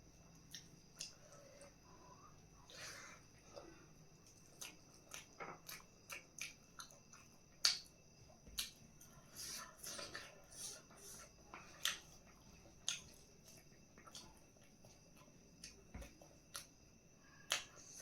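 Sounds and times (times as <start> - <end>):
soft chewing: 0.0 - 18.0
mouth clicks and smacks: 4.3 - 8.8, 15.6 - 16.8.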